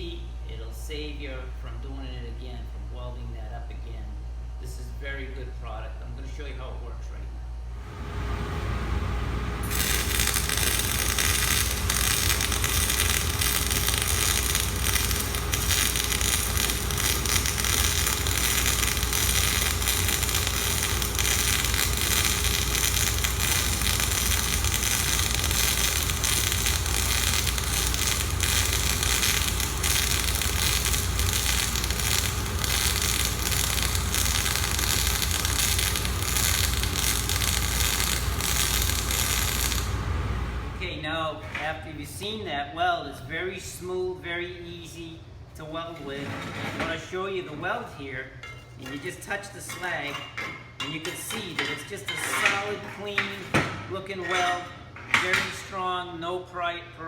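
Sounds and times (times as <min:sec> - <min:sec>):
welding arc crackling sizzle: 0:09.5 - 0:40.7.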